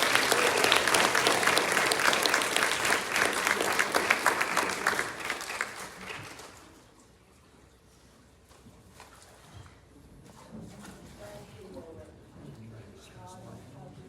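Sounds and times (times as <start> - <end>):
congregation applauding: 0.0 - 6.8.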